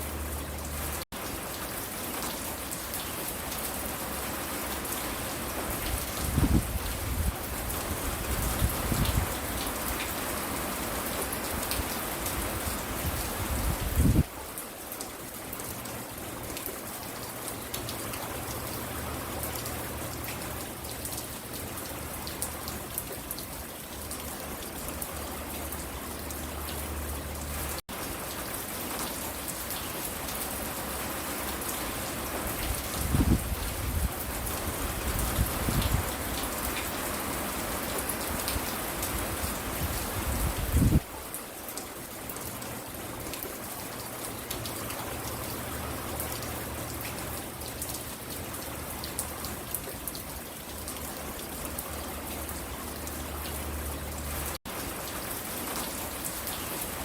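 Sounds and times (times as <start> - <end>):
rain pattering on surfaces: 0.0 - 57.0.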